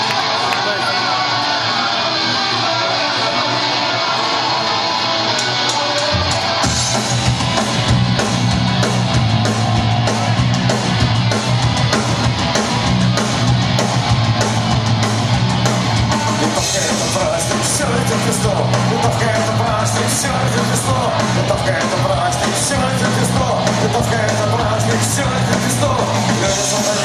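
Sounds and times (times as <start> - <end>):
punk rock band playing: 0.0 - 27.0.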